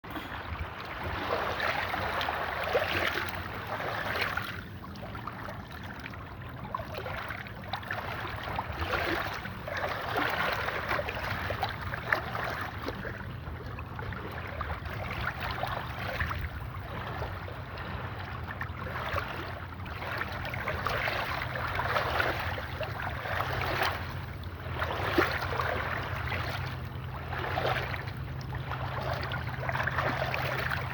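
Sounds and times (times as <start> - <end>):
river water washing against bank: 0.0 - 30.9.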